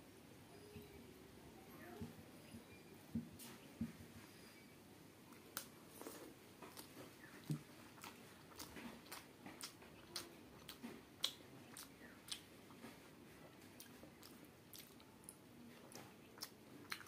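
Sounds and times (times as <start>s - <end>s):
mouth chewing: 5.3s - 17.0s.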